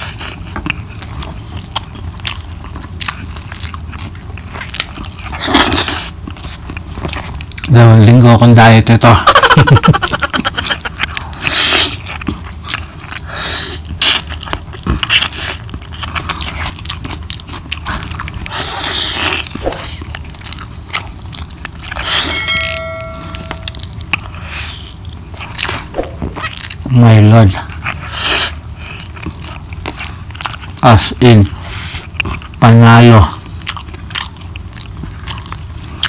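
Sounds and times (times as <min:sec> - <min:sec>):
man chewing with mouth clicks: 0:00.0 - 0:07.8, 0:10.1 - 0:22.4, 0:23.4 - 0:26.9, 0:27.6 - 0:36.0
short high tone: 0:22.0 - 0:24.0.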